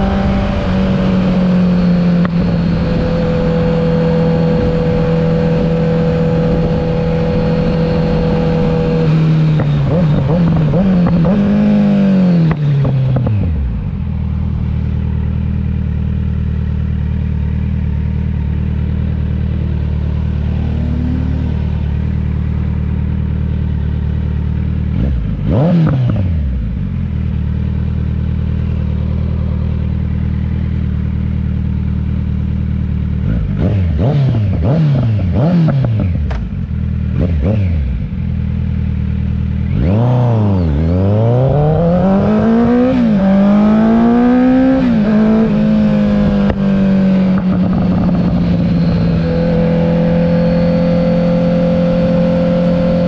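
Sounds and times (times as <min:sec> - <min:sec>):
motorcycle engine revving and idling: 0:00.0 - 0:53.0.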